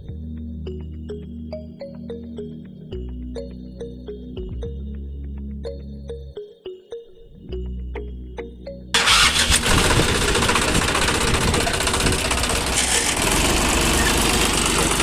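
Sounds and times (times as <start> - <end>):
engine starting and running: 9.0 - 15.0.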